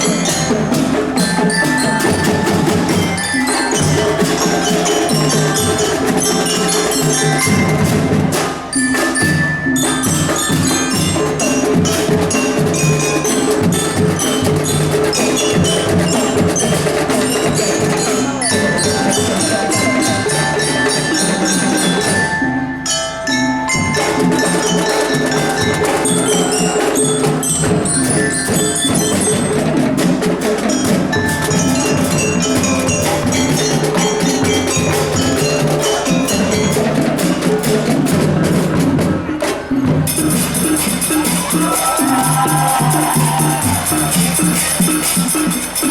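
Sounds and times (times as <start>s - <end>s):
drums: 0.0s - 45.9s
mallet-struck bell melody: 0.0s - 45.9s
wood-block percussion: 0.0s - 45.9s.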